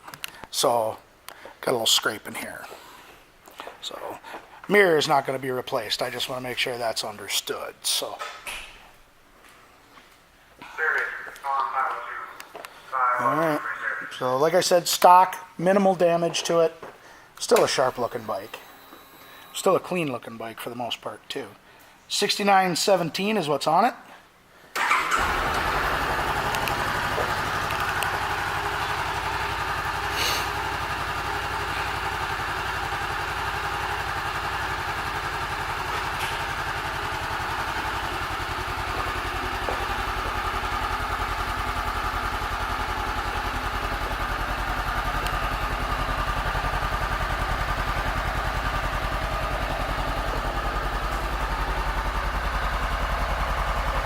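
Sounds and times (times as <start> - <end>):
motorcycle engine starting and idling: 17.6 - 18.6, 24.7 - 54.0.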